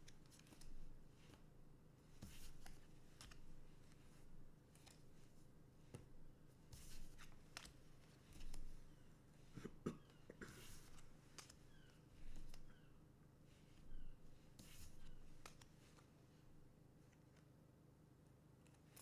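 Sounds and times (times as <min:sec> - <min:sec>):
trading cards rustling and clicking: 0:04.8 - 0:05.2, 0:06.8 - 0:09.0, 0:10.0 - 0:12.8, 0:14.6 - 0:16.1.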